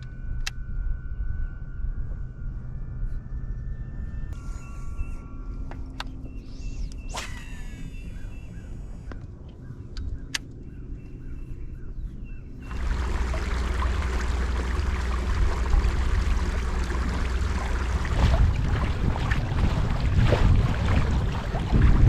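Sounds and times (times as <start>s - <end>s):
wind buffeting microphone: 6.2s - 22.0s
water sloshing against kayak: 12.7s - 22.0s.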